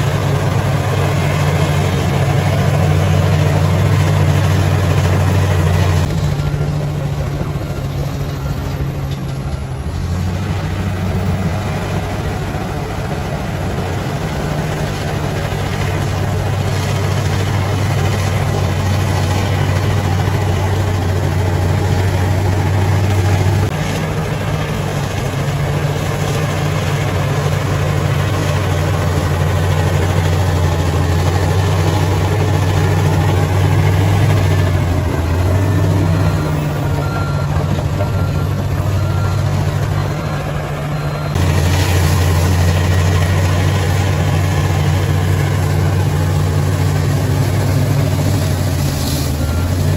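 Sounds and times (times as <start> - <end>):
bulldozer diesel engine running: 0.0 - 49.9.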